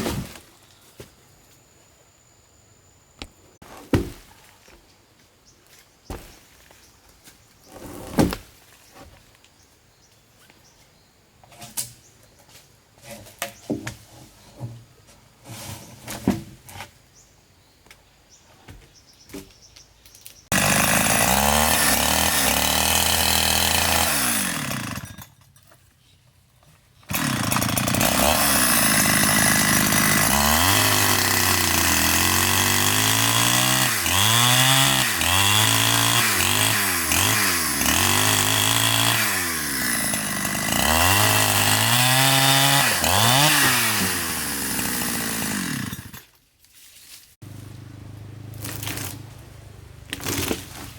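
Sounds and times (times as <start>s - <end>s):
chainsaw cutting wood: 20.5s - 25.4s, 27.0s - 46.3s, 48.5s - 49.4s, 50.1s - 50.9s.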